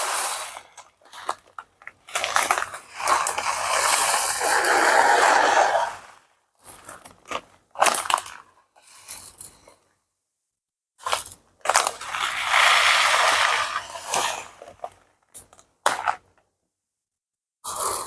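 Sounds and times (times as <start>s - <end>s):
crunching of hard grains being chewed: 0.0s - 4.8s, 17.6s - 18.0s.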